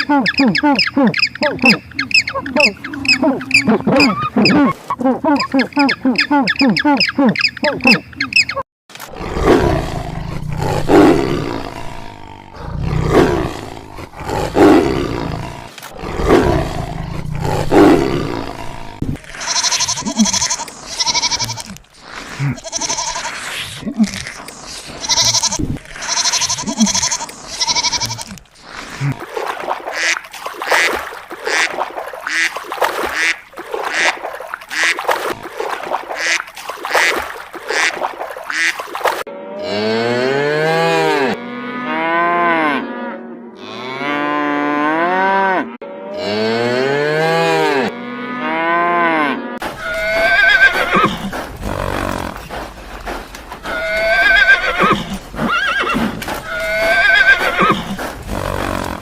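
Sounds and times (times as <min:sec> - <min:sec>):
high wavering animal calls: 0:00.0 - 0:08.6
cow mooing: 0:39.3 - 0:50.5.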